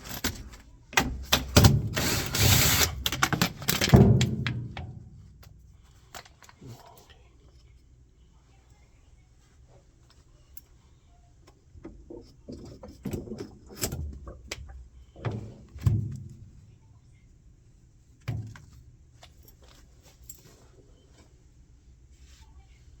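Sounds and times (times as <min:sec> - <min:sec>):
handling knocks and rattles: 0:00.0 - 0:06.8, 0:11.8 - 0:16.8, 0:18.2 - 0:20.7.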